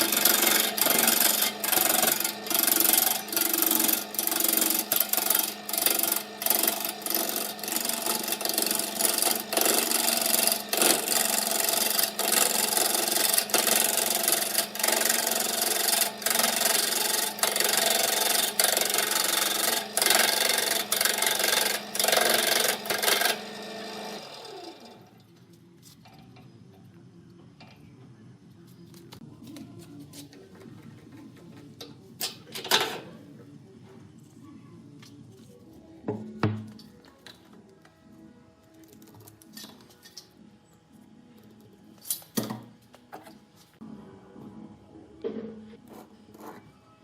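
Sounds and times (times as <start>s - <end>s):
lathe tool scraping wood: 0.0s - 24.9s
lathe motor hum: 0.0s - 25.1s.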